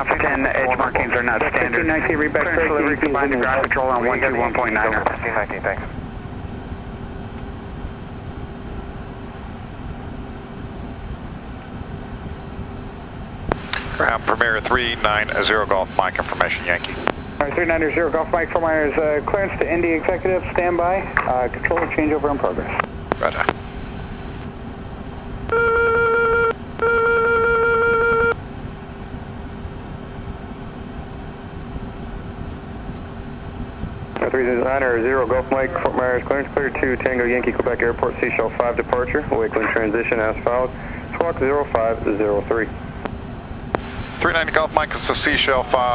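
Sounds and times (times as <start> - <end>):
cockpit hum low rumble: 0.0 - 45.9
buzzy electronic tone: 25.5 - 28.4.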